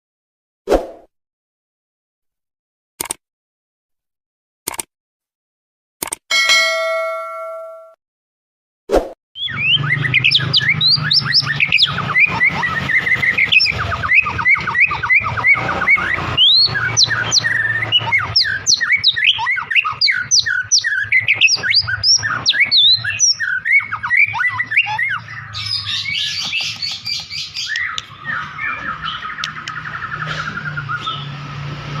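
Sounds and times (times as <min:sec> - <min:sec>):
bird singing whistled notes: 0:09.4 - 0:30.0.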